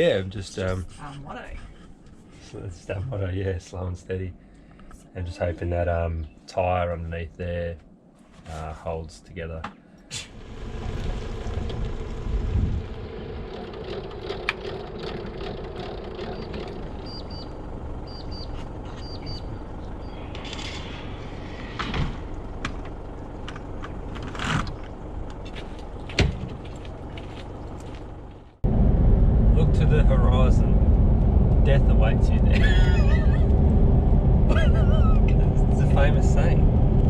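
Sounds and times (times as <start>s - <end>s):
road and engine noise in vehicle: 10.2s - 37.0s.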